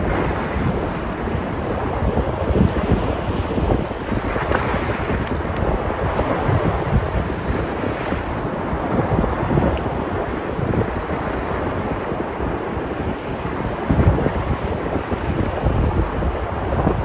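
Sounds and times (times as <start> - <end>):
waves breaking on shore: 0.0 - 17.0
wind buffeting microphone: 0.0 - 17.0.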